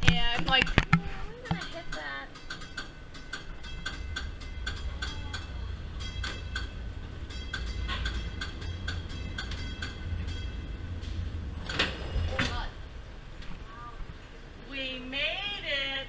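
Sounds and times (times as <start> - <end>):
streetcar rumbling on rails: 0.0 - 16.0.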